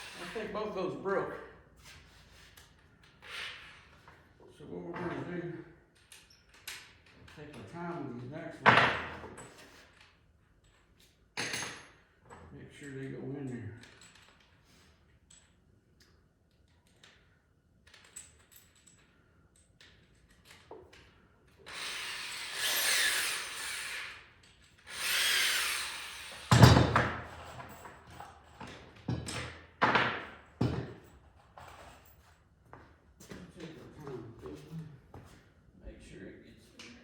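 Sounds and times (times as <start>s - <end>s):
power drill driving screws: 0.0s - 0.5s, 21.6s - 27.7s.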